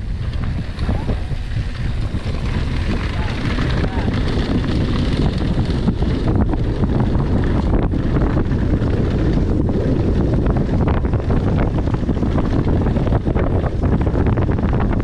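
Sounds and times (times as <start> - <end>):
bike knocks and rattles: 0.0 - 15.0
wind buffeting microphone: 0.0 - 15.0.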